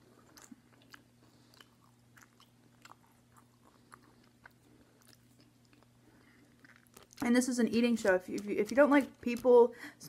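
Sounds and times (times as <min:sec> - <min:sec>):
person chewing with mouth closed: 0:00.0 - 0:07.2
low steady hum: 0:00.0 - 0:10.0.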